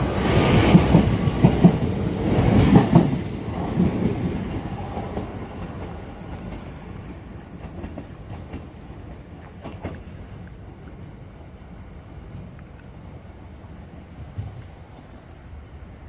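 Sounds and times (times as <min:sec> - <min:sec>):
train wheels clattering: 0:00.0 - 0:10.4
distant train rumble: 0:00.0 - 0:16.0.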